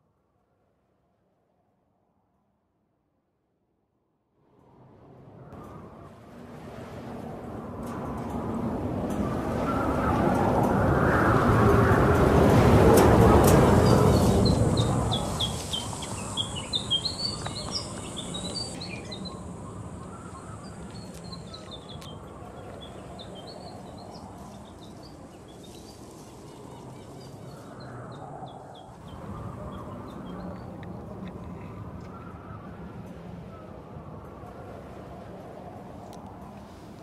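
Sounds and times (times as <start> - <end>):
low outdoor background: 0.0 - 37.0
small birds chirping: 13.8 - 32.6.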